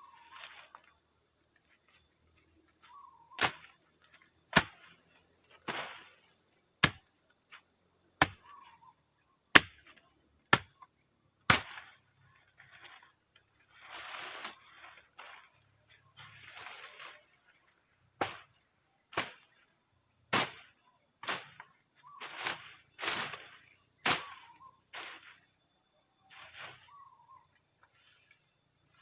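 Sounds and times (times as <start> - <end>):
high insect drone: 0.0 - 29.0
tool chopping wood: 6.8 - 7.1, 8.2 - 8.5, 9.5 - 10.8.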